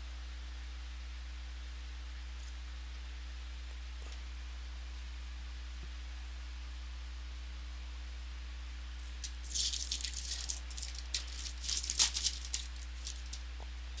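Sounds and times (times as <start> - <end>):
foil wrapper crinkling and tearing: 9.0 - 14.0.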